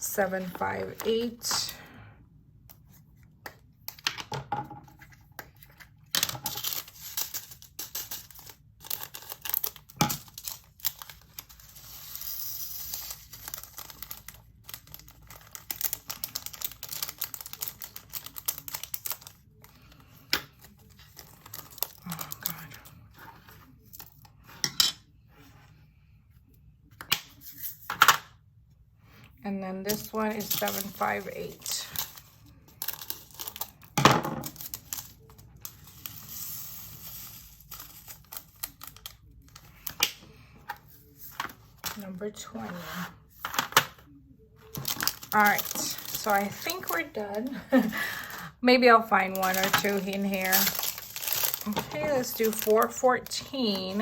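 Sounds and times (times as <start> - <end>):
plastic bags crinkling: 6.2 - 20.0, 20.6 - 23.0, 29.9 - 40.0, 44.6 - 48.5, 49.1 - 54.0
plastic beads pouring and rattling: 6.5 - 19.4, 34.5 - 39.0, 44.7 - 47.0, 49.3 - 54.0.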